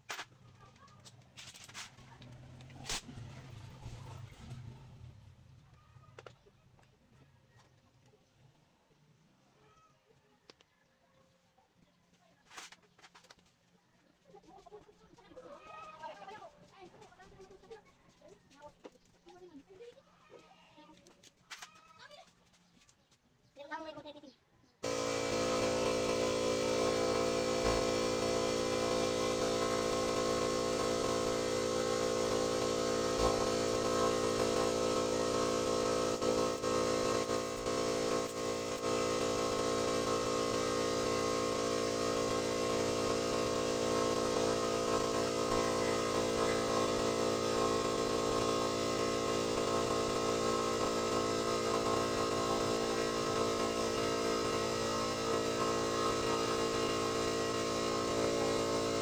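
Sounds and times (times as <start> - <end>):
machine hum: 24.8 - 59.0.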